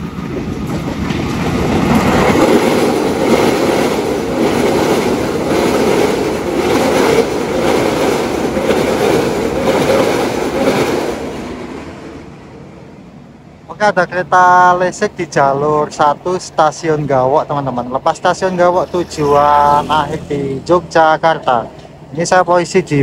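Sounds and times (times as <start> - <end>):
train wheels clattering over rail joints: 0.0 - 11.6.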